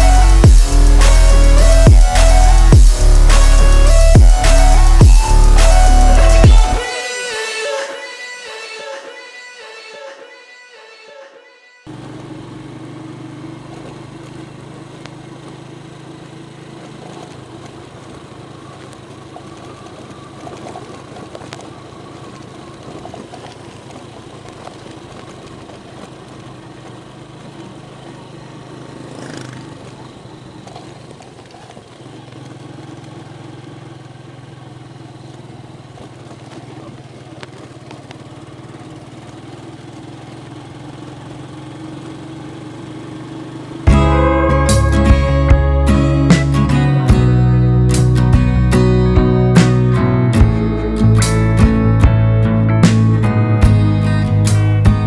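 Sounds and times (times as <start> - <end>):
vehicle engine humming: 0.0 - 9.5, 11.9 - 55.0.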